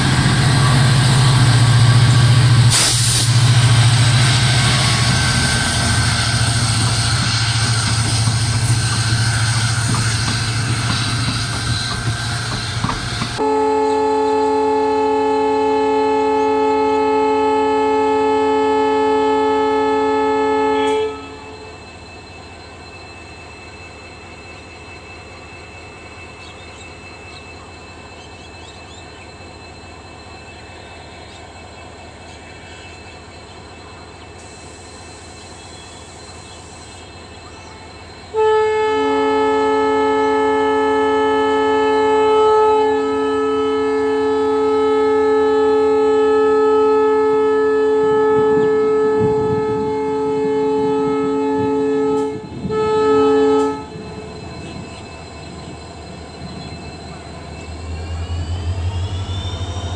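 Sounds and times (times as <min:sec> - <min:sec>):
locomotive horn: 0:00.0 - 0:21.8, 0:37.6 - 0:59.9
steady locomotive hum: 0:00.0 - 0:59.9.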